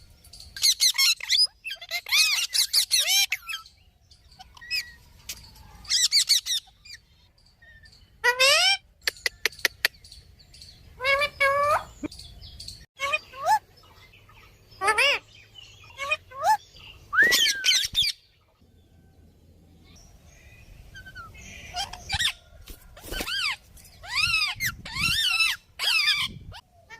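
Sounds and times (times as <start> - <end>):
parrot calling: 0.6 - 3.7, 14.4 - 18.2, 23.3 - 26.9.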